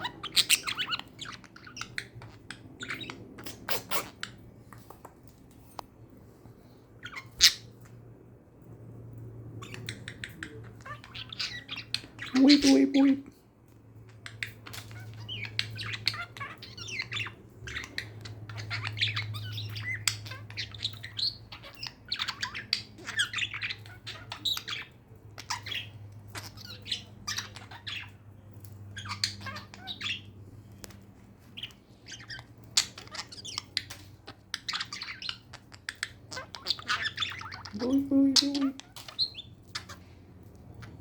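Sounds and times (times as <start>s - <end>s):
budgerigars chattering: 0.0s - 4.2s, 9.7s - 13.2s, 31.6s - 40.0s.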